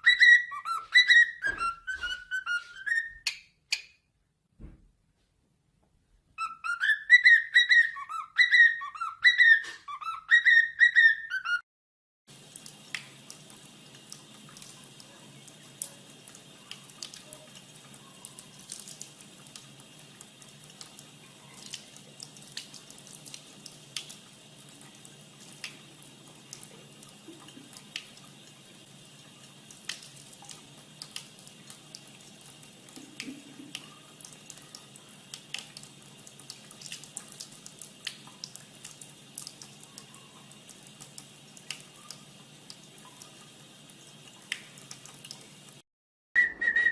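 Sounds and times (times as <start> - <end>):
water drips: 12.3 - 45.8
water running from tap: 12.3 - 45.8.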